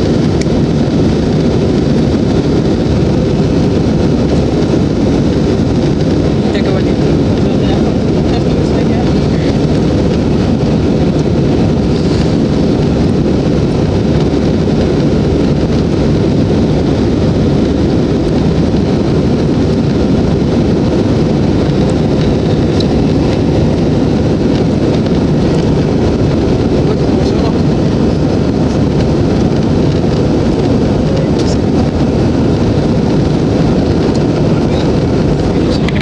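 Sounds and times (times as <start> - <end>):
jet engines rumbling in cabin: 0.0 - 36.0.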